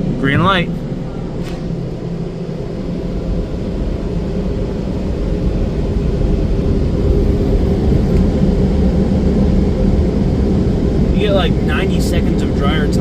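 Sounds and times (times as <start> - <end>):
dryer blowers rushing air: 0.0 - 13.0.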